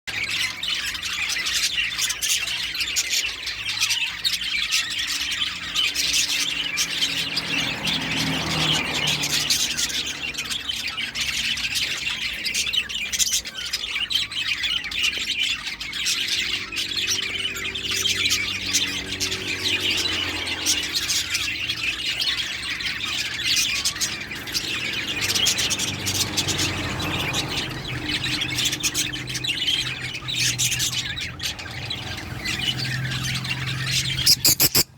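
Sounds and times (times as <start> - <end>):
lovebird chattering and squawking: 0.1 - 34.9.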